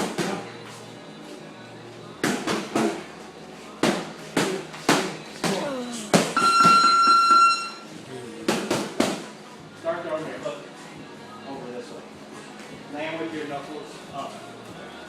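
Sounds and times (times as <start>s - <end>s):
punches smacking a bag: 3.8s - 6.4s
electronic beep: 6.4s - 7.9s.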